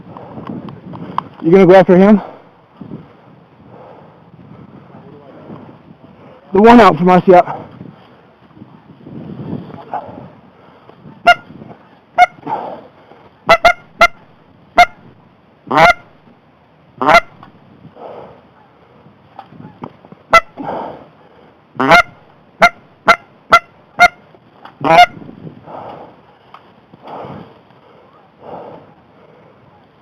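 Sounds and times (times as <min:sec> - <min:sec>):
goose honks and clucks: 0:11.1 - 0:11.5, 0:12.2 - 0:12.5, 0:13.4 - 0:15.1, 0:15.7 - 0:16.2, 0:17.0 - 0:17.5, 0:19.6 - 0:20.6, 0:21.8 - 0:24.2, 0:24.8 - 0:25.2.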